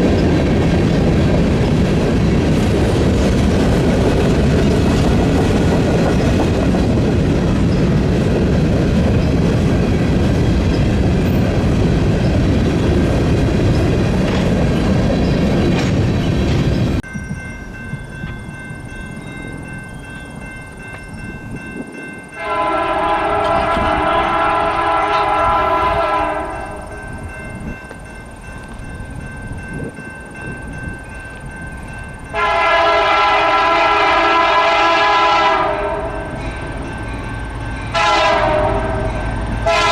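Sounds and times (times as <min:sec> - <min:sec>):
freight train rumbling: 0:00.0 - 0:39.9
locomotive horn blasts: 0:22.4 - 0:27.0, 0:32.3 - 0:36.4, 0:37.9 - 0:39.9.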